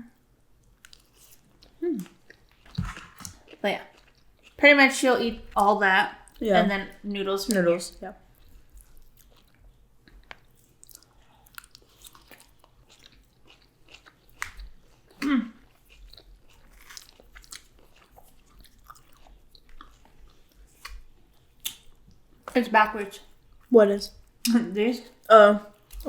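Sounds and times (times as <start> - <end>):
person chewing food: 0.6 - 4.6, 8.2 - 22.6, 23.2 - 26.0
person humming: 1.8 - 2.2.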